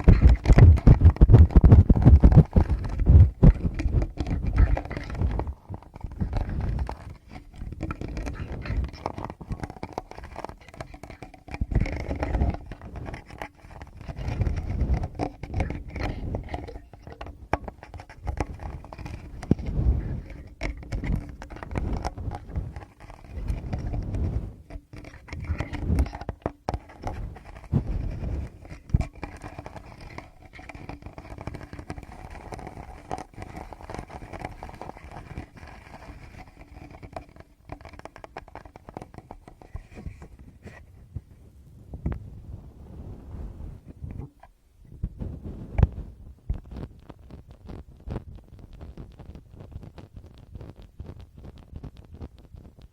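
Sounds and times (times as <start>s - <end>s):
fingers tapping on microphones: 0.0s - 22.8s.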